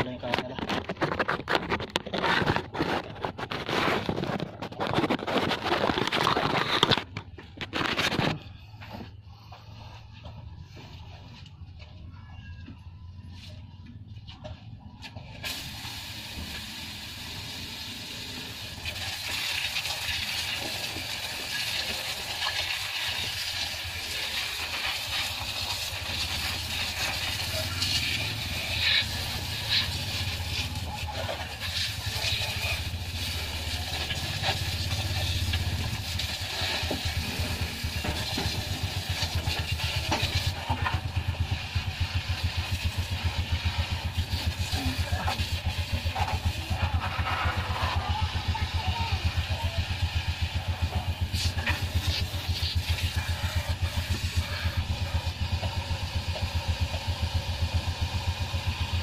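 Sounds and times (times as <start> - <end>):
water spraying from a hose: 15.0 - 59.0.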